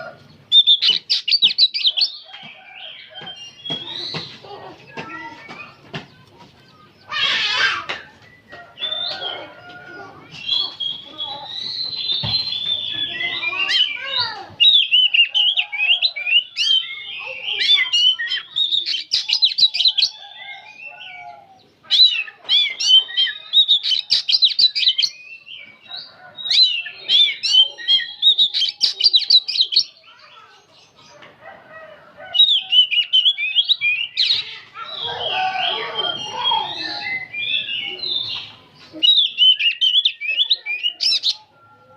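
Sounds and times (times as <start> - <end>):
bird singing chattering runs: 0.0 - 21.0.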